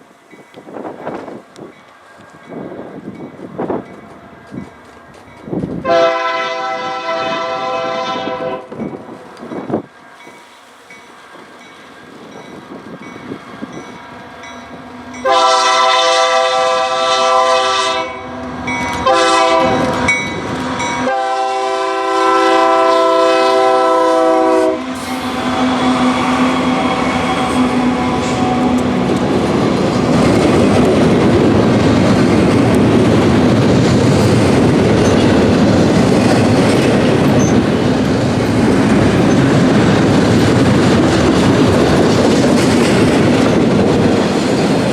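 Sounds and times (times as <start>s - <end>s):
diesel locomotive engine: 0.0s - 44.9s
locomotive air horn blasts: 5.8s - 8.7s, 15.2s - 18.4s, 19.0s - 20.1s, 21.0s - 28.8s
freight cars rumbling and clattering: 28.8s - 44.9s.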